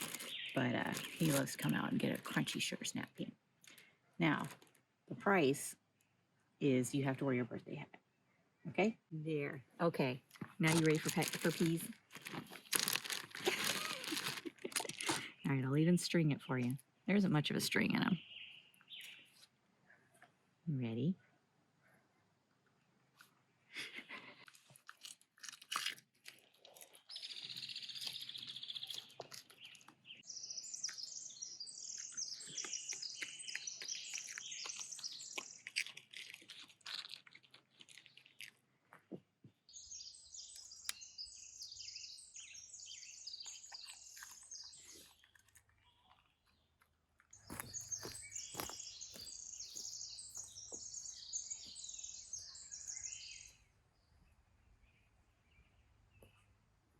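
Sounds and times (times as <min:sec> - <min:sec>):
small birds chirping: 0:00.0 - 0:25.1, 0:25.8 - 0:56.6
dog crunching a pea: 0:10.7 - 0:15.3, 0:24.4 - 0:30.0, 0:31.9 - 0:39.1, 0:43.4 - 0:49.3.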